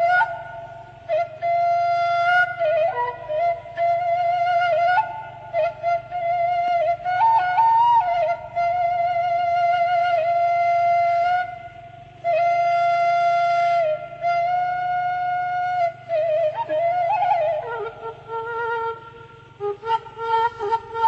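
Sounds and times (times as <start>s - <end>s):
flute playing slow melody: 0.0s - 21.0s.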